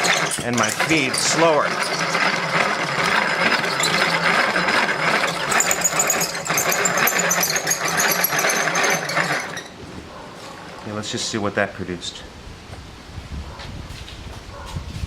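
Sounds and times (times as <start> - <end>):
blade shaving wood: 0.0 - 9.8
power drill motor: 0.0 - 9.8.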